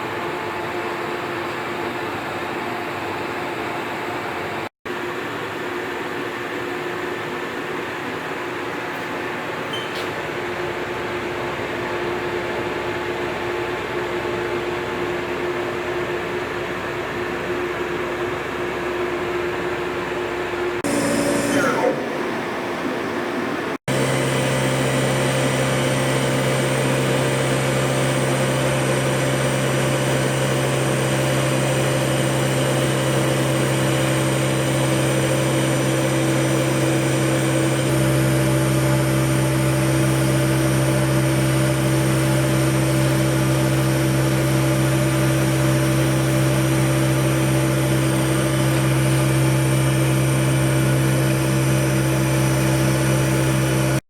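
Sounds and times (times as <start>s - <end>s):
milling machine hum: 0.0s - 54.0s.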